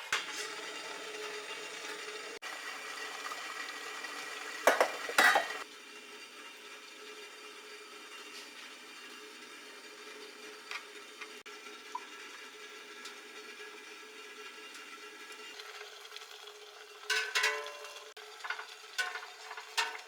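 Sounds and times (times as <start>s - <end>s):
food sizzling in a pan: 0.0s - 20.0s
cookware clattering: 4.5s - 5.6s, 17.1s - 20.0s.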